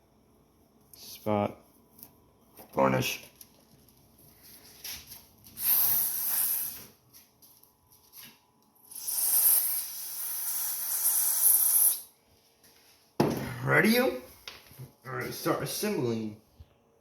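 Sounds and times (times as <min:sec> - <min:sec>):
aerosol can spraying: 0:05.6 - 0:06.9, 0:08.9 - 0:12.1.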